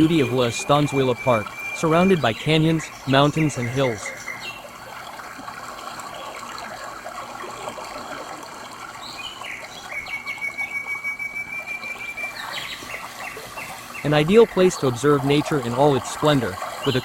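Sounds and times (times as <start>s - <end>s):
bird whistling note: 0.0s - 4.6s, 9.1s - 13.8s
mountain stream running: 0.0s - 17.0s.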